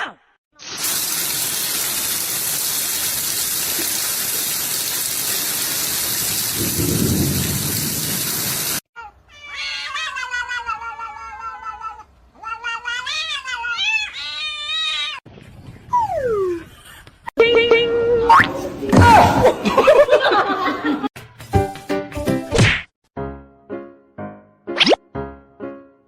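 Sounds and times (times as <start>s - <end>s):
heavy rain: 0.6s - 8.8s
thunder rumble: 6.2s - 8.8s
cat meowing: 9.0s - 15.2s.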